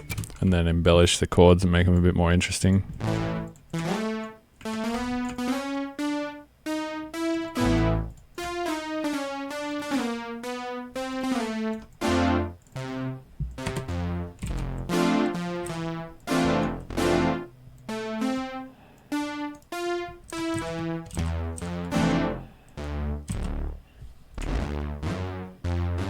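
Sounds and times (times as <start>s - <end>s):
deep bass notes: 2.9s - 5.6s, 6.7s - 8.2s, 11.1s - 18.6s, 19.2s - 26.0s
synthesizer chords: 2.9s - 26.0s.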